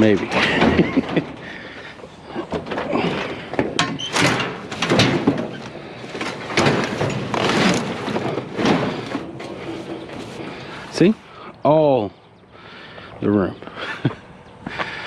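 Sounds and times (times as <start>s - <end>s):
metal chair knocking and clanking: 2.4s - 10.4s
metal scraping rasps: 2.4s - 11.2s.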